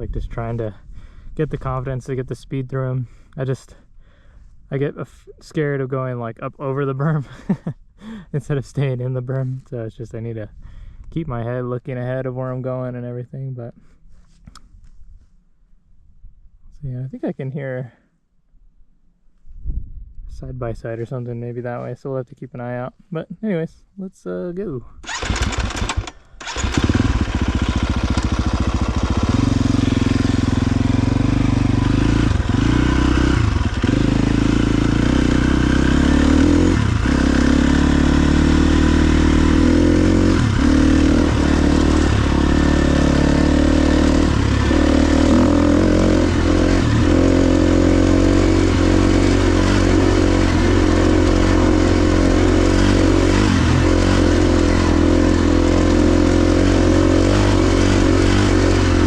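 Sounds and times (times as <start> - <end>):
dirt bike engine: 25.0 - 59.0.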